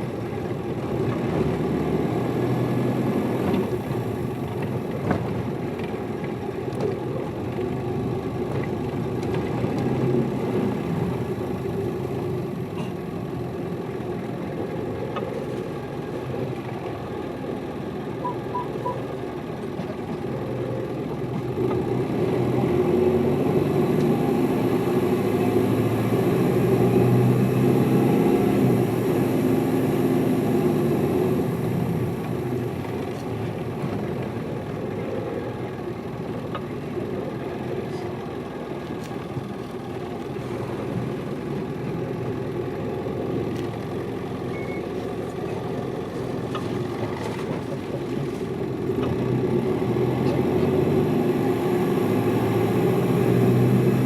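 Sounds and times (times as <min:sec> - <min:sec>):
bus diesel engine running: 0:00.0 - 0:54.0
short high pips: 0:18.2 - 0:19.0.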